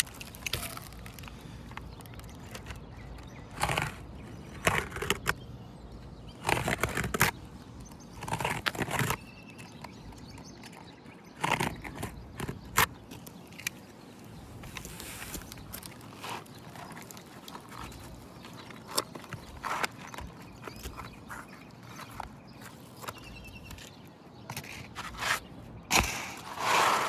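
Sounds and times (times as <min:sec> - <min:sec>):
roof shingles scraping and crackling: 0:00.0 - 0:05.3, 0:24.6 - 0:27.0.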